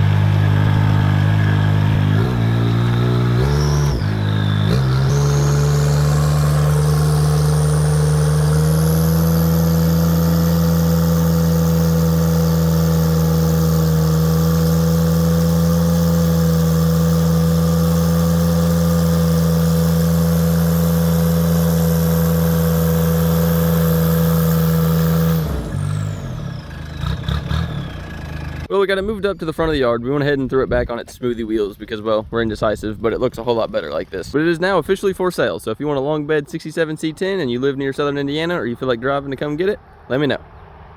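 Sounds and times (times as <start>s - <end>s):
pickup truck engine revving: 0.0s - 28.7s.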